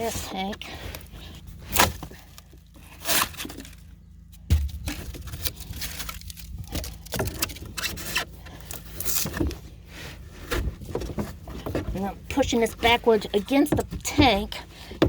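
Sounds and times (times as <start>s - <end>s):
foam scraping and crunching: 0.0s - 15.0s
heavy thud: 4.4s - 5.3s.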